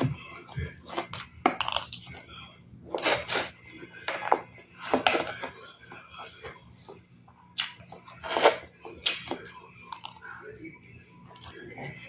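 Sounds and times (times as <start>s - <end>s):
faint steady hum: 0.0s - 12.0s
crisp eating crunches: 0.7s - 2.3s, 4.8s - 10.2s.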